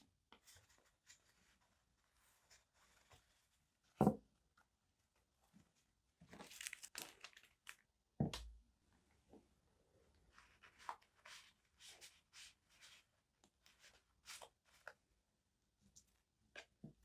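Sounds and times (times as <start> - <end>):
object tapped down on desk: 4.0 - 4.2
paper crinkling and rustling: 6.2 - 7.9.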